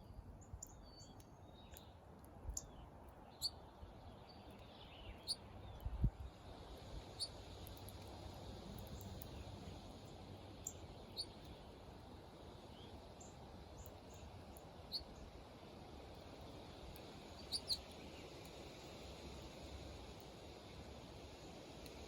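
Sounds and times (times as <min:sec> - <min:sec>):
faint background noise: 0:00.0 - 0:22.0
birds chirping: 0:17.4 - 0:18.0.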